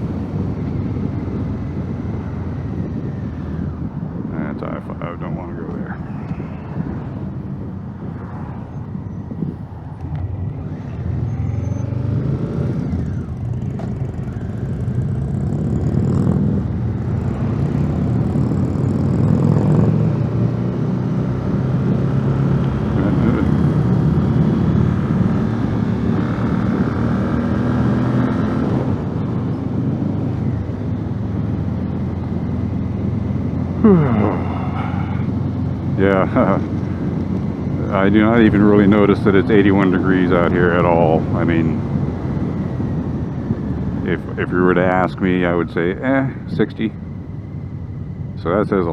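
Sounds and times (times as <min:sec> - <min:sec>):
motorcycle engine running: 0:06.3 - 0:20.1, 0:23.0 - 0:46.3.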